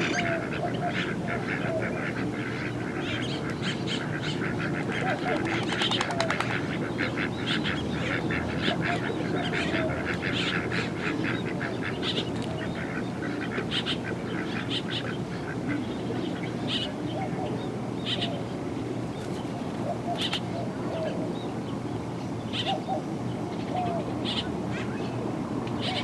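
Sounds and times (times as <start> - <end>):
waterfowl calling: 0.0 - 15.8.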